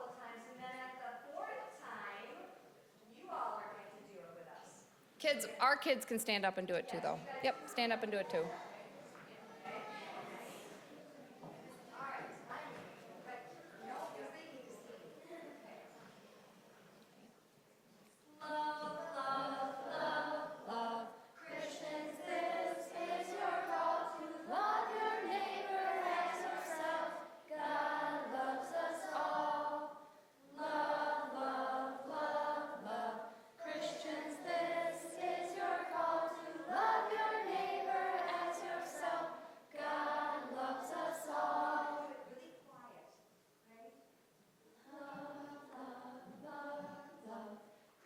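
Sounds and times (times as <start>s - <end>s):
group singing unaccompanied: 18.4s - 42.3s, 44.9s - 47.8s.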